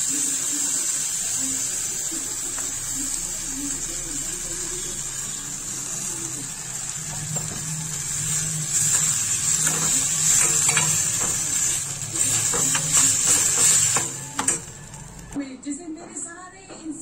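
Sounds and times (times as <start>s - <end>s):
vegetables sizzling in a pan: 0.0s - 15.4s
steel spoon scraping a pan: 4.6s - 15.4s.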